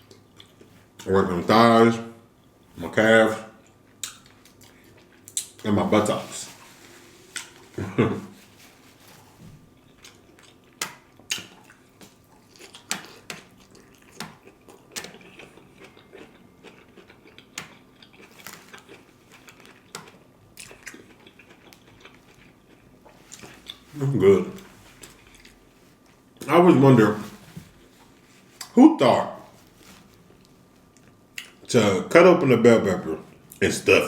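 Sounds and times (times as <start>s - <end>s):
person chewing food: 0.0s - 1.1s, 3.6s - 5.6s, 6.4s - 26.5s, 29.5s - 31.7s.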